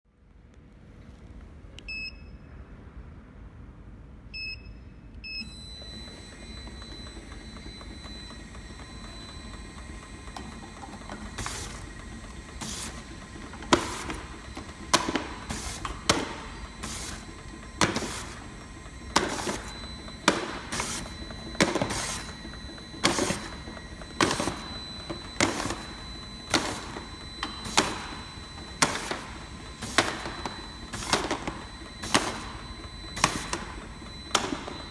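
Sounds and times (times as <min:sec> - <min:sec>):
short beeps: 0:04.4 - 0:09.6
labeling machine humming: 0:05.4 - 0:34.9.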